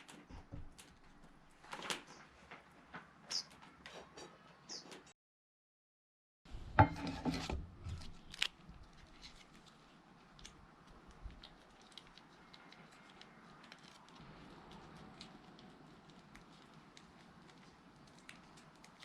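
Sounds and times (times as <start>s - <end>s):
scraping and rubbing handling: 6.8s - 8.4s
wood fire crackling: 6.8s - 19.0s.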